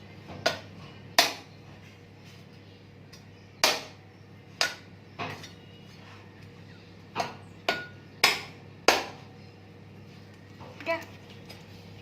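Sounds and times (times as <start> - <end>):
blade chopping coconut: 0.4 - 1.5, 3.6 - 4.0, 7.2 - 9.3.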